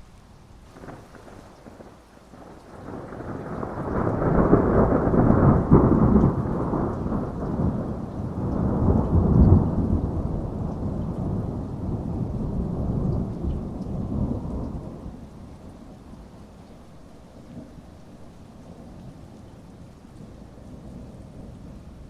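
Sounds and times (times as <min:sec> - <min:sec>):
steady rain: 0:00.0 - 0:22.0
thunder crackle: 0:00.7 - 0:15.5
rolling thunder: 0:00.7 - 0:16.4, 0:17.4 - 0:22.0.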